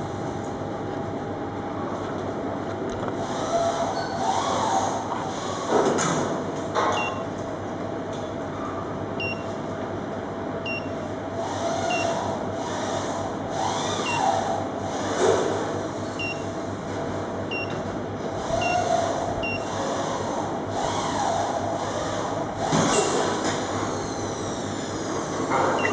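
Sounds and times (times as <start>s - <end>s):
machine running: 11.4s - 25.9s.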